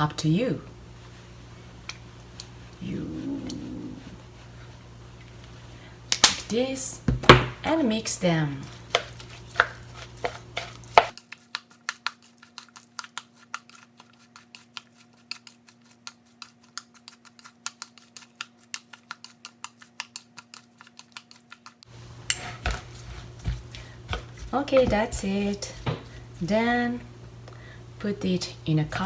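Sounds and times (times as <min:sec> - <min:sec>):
faint steady hum: 0:00.0 - 0:11.1, 0:21.9 - 0:29.0.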